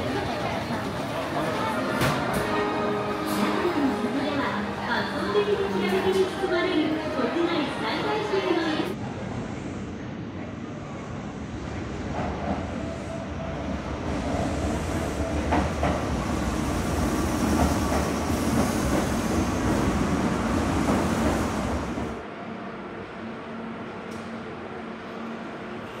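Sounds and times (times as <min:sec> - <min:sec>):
train wheels rumbling: 0:11.8 - 0:22.2
train clacks: 0:14.0 - 0:22.2.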